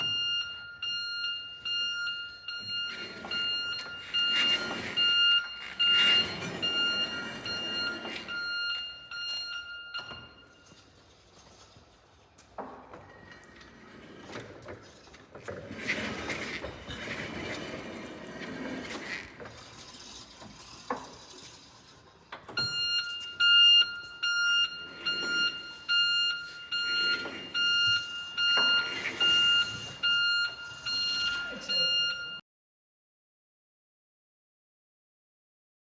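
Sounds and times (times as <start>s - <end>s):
forklift warning beeps: 0.0s - 11.5s, 22.4s - 32.4s
forklift running noise: 0.0s - 32.4s.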